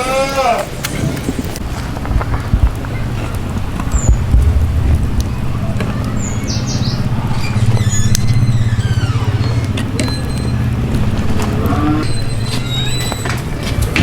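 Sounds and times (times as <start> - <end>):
birds chirping: 0.0 - 14.0
low engine-like hum: 2.3 - 14.0.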